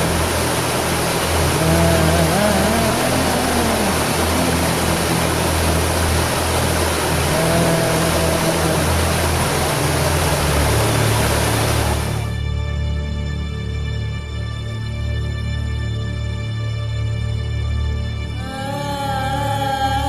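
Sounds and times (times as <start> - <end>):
waterfall roaring: 0.0 - 12.4
soft music: 0.0 - 20.0.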